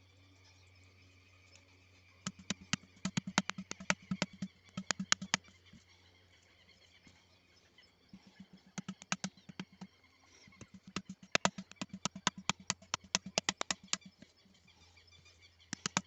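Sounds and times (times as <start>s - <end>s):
sharp irregular taps: 2.3s - 5.5s, 8.2s - 9.9s, 10.5s - 14.4s, 15.7s - 16.0s.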